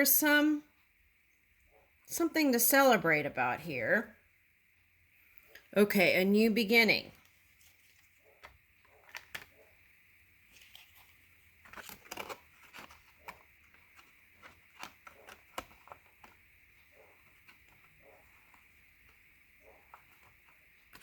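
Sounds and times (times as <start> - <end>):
cards clicking and rustling: 7.2 - 9.6, 10.5 - 21.0.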